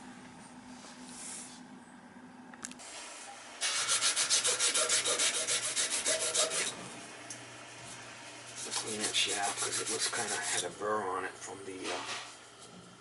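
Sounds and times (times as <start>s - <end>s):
abrasive scraping steel shaft: 4.1s - 6.9s.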